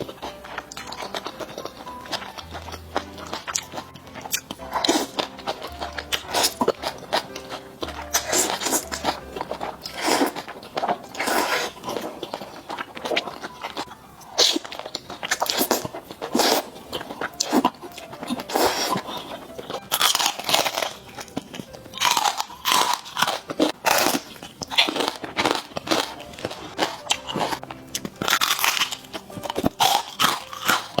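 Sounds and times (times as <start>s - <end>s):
person chewing crunchy food: 0.0s - 31.0s.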